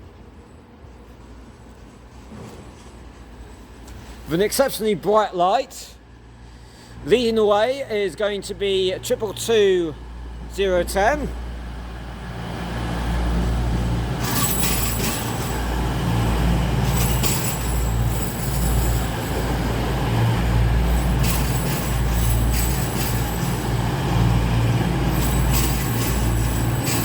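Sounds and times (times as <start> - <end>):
diesel engine hum: 8.0 - 27.0
wheel and brake squeals: 14.1 - 27.0.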